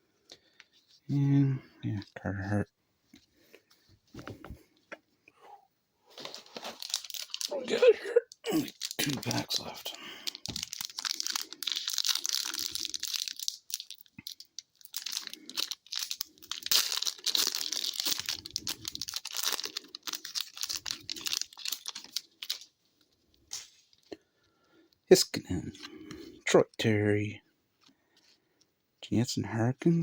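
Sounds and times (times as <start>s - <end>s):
wrapper crinkling and tearing: 6.1s - 24.1s.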